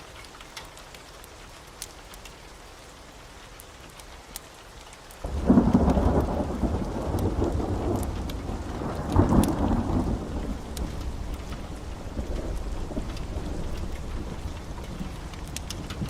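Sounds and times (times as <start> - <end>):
steady rain: 0.0 - 16.0
rolling thunderclap: 5.2 - 16.0.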